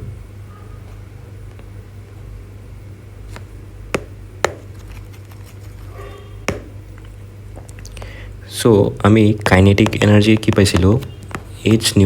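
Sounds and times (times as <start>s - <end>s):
low steady hum: 0.0s - 12.0s
sharp taps or clicks: 4.0s - 5.4s, 6.5s - 6.8s.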